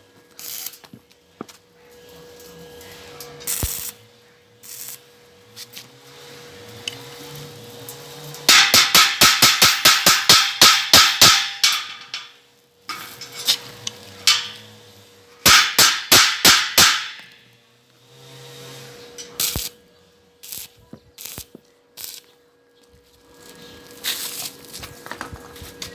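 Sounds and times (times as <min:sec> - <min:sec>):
hammer striking steel: 0:08.5 - 0:14.8, 0:15.4 - 0:17.4.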